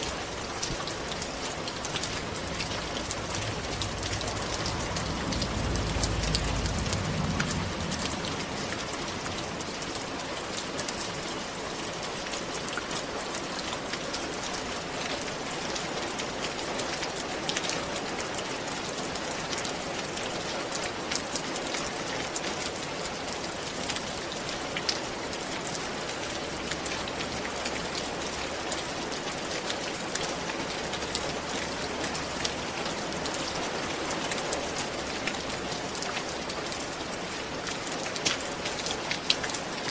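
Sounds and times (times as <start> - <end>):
rain falling on a roof: 0.0 - 39.9
low rumble: 0.9 - 10.4.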